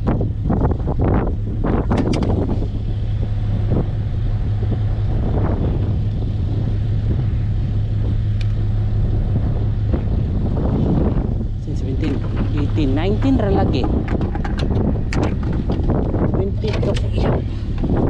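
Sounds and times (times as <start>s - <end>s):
vehicle engine humming: 0.0s - 18.0s
knocks and rattles: 11.8s - 17.9s.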